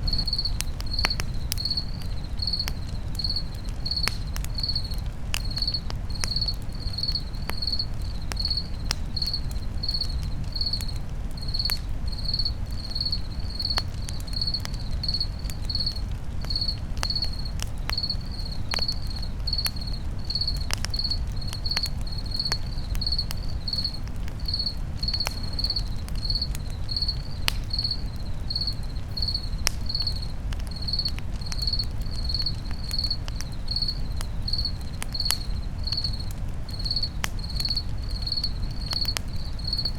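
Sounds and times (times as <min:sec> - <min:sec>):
low rumble: 0:00.0 - 0:01.0
campfire crackling and popping: 0:00.0 - 0:39.9
crickets chirping: 0:00.0 - 0:39.9.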